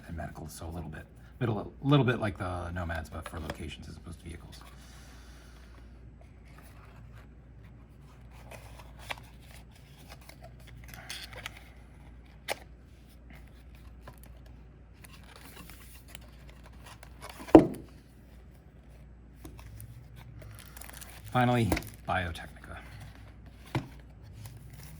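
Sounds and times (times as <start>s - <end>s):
cards and packaging rustling: 2.9s - 24.9s
loud thump: 17.6s - 17.9s.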